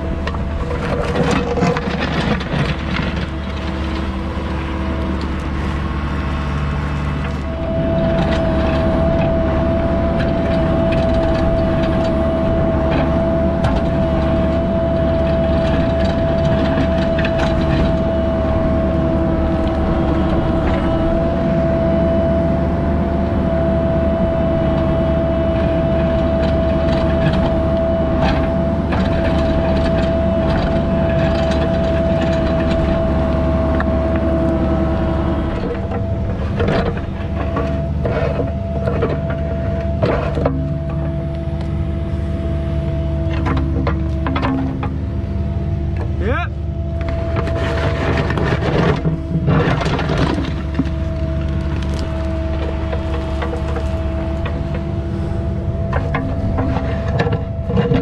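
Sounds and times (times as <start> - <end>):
diesel heavy equipment running: 0.0 - 58.0.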